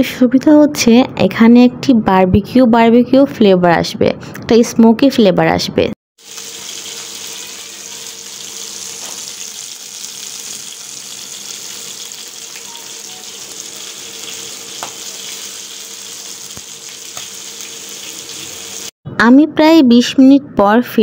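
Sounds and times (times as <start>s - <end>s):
chicken sizzling in frying pan: 6.2s - 19.0s.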